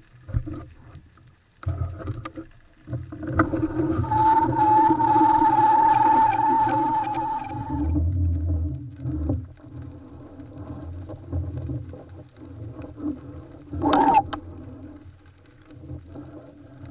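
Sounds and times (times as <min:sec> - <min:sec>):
underwater rumble of moving water: 0:00.0 - 0:16.9
water gurgling burst: 0:03.0 - 0:15.0
boat engine whine: 0:03.4 - 0:08.0.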